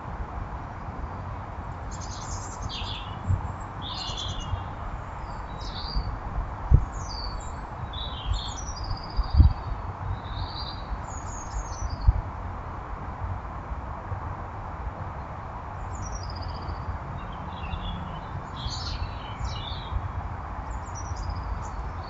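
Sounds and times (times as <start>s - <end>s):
small birds chirping: 1.8s - 12.2s, 15.8s - 22.0s.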